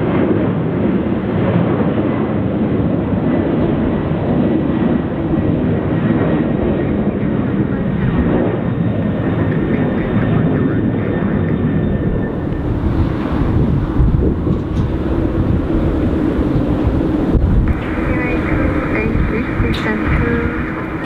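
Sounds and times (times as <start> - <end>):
jet engines rumbling: 0.0 - 21.0
faint high whine: 17.7 - 21.0.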